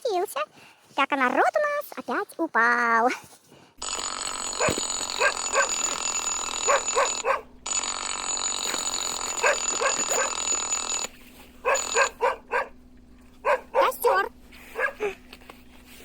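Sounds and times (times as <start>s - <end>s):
dog barking: 4.6s - 6.0s, 6.6s - 7.6s, 9.4s - 10.5s, 11.6s - 12.8s, 13.4s - 15.2s.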